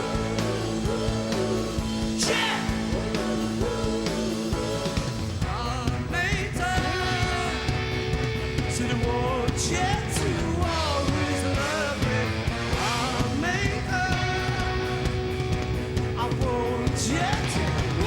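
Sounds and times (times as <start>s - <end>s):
rock band playing live: 0.0s - 18.0s.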